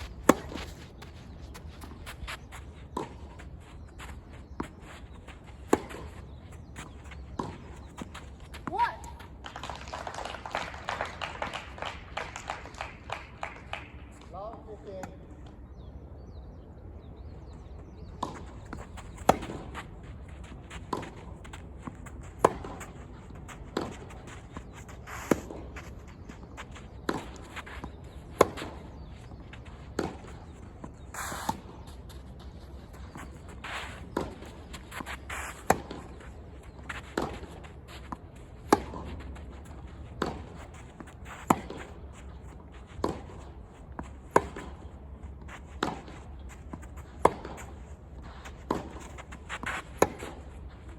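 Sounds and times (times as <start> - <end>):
racket striking tennis ball: 0.0 - 2.2, 18.2 - 19.8, 20.6 - 30.6, 33.2 - 36.2, 37.1 - 44.8, 45.8 - 47.8, 48.6 - 50.5.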